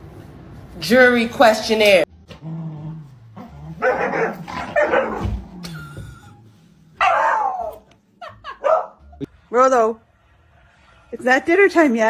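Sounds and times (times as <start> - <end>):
dog barking and whining: 3.4 - 5.8, 7.0 - 7.9, 8.5 - 9.0.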